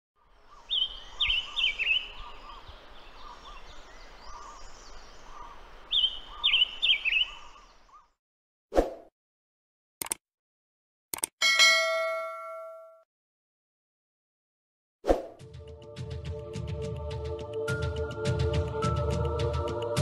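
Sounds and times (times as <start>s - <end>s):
chorus of other birds: 0.2s - 8.2s
click: 10.0s - 10.2s, 11.1s - 11.3s.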